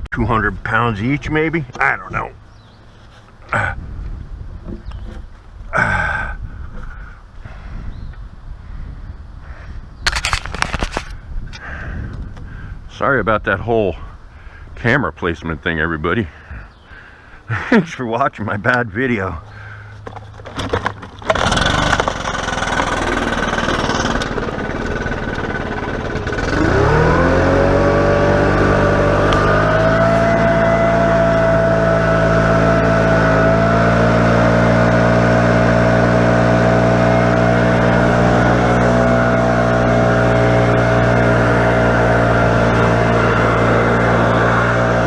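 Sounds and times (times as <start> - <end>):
chainsaw engine revving: 20.4 - 45.0.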